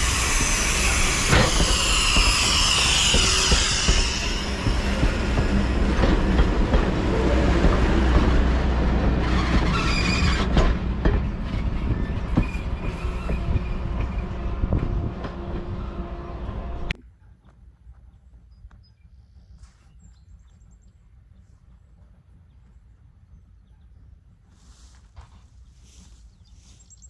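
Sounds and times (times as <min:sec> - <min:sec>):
wheels clicking over rail joints: 0:00.0 - 0:15.9
train rumbling past: 0:00.0 - 0:17.0.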